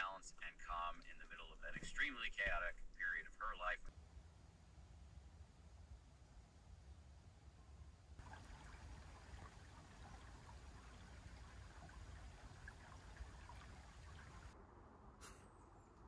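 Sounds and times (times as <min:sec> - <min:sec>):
faint running water: 0:08.2 - 0:14.6.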